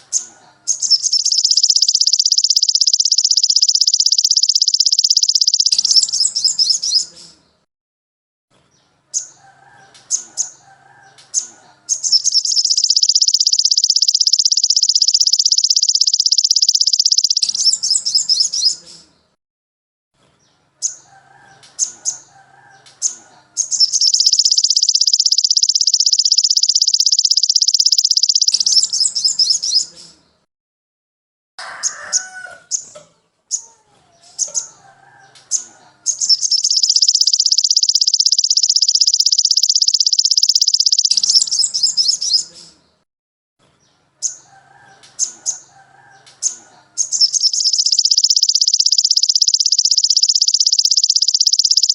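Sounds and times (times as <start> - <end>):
fast high bird trills: 0.0 - 7.1, 11.4 - 18.8, 23.0 - 29.9, 34.4 - 42.5, 46.4 - 51.9
songbird chirps and warbling: 0.0 - 7.7, 8.5 - 19.4, 20.2 - 30.5, 31.8 - 43.0, 43.6 - 51.9.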